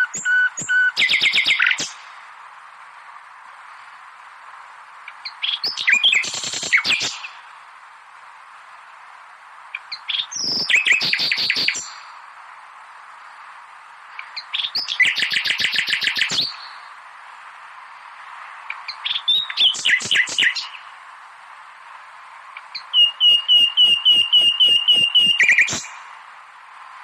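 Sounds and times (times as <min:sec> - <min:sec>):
nightingale singing: 0:00.0 - 0:02.2, 0:05.0 - 0:07.5, 0:09.7 - 0:12.2, 0:14.0 - 0:17.0, 0:18.6 - 0:21.0, 0:22.5 - 0:26.2
background hiss: 0:00.0 - 0:27.0.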